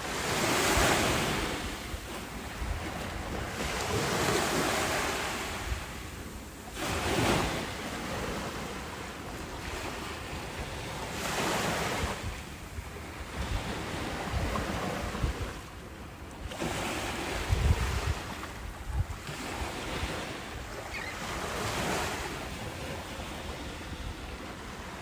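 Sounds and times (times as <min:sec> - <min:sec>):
wind buffeting microphone: 0:00.0 - 0:15.8, 0:16.4 - 0:25.0
ocean waves breaking: 0:00.0 - 0:25.0.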